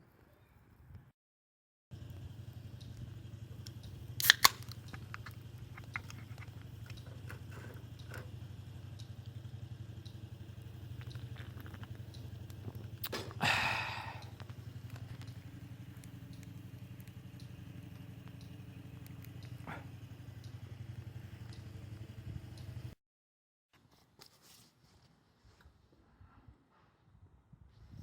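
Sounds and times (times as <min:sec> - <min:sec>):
steady low hum: 0:01.9 - 0:23.0
sharp clicks: 0:02.1 - 0:08.3, 0:14.2 - 0:19.6
person chewing food: 0:05.2 - 0:07.8, 0:10.9 - 0:13.4
crunching rustle: 0:11.0 - 0:13.4.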